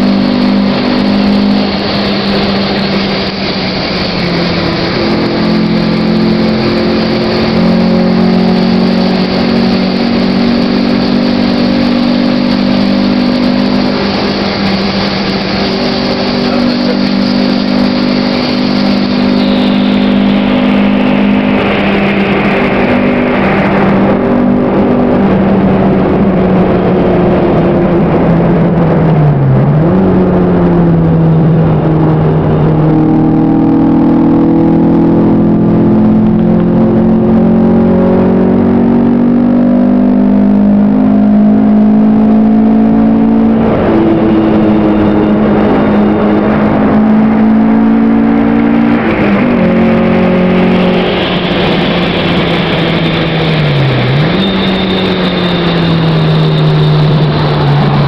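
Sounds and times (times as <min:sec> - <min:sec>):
car engine at high revs: 0:00.0 - 0:58.0
road noise: 0:00.0 - 0:58.0
wind noise: 0:00.0 - 0:58.0.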